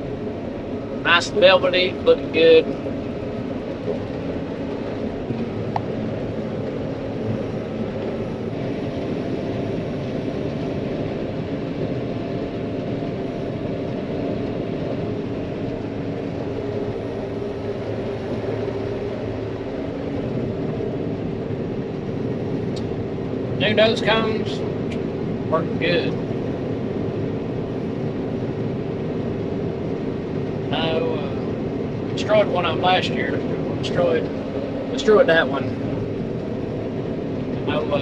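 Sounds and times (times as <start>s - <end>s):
combine harvester drone: 0.0s - 38.0s.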